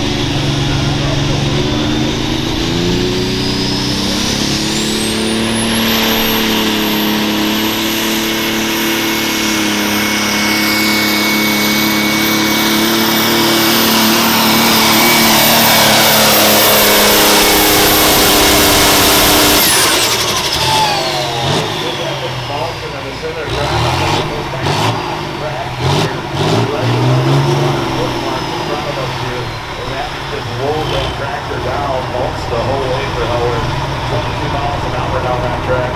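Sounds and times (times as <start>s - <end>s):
high turbo whistle: 0.0s - 23.4s
tractor engine under load: 0.0s - 35.9s.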